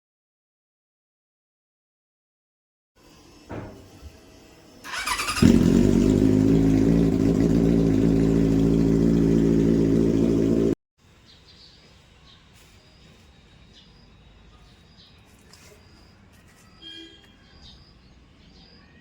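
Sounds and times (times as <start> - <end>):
motorcycle engine starting and idling: 4.8 - 10.8.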